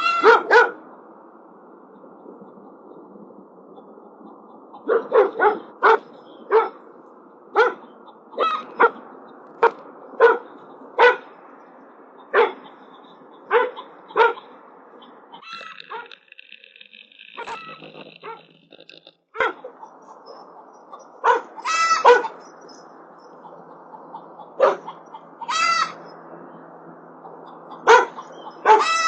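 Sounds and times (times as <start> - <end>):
dog barking: 0.0 - 0.8, 4.8 - 6.8, 7.6 - 9.0, 9.6 - 11.3, 12.3 - 12.7, 13.5 - 14.5, 19.4 - 19.7, 21.2 - 22.4, 24.6 - 25.0, 27.8 - 29.0
steady high-pitched sound: 15.4 - 19.1.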